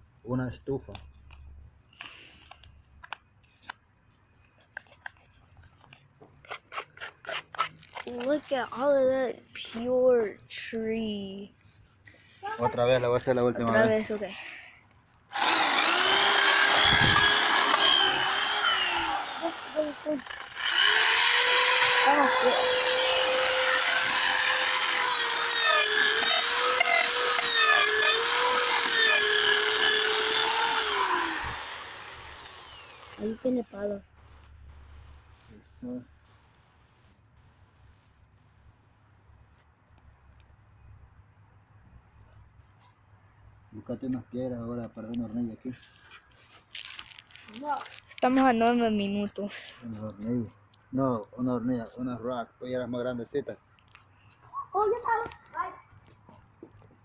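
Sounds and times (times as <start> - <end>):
small motor running: 15.3 - 33.6.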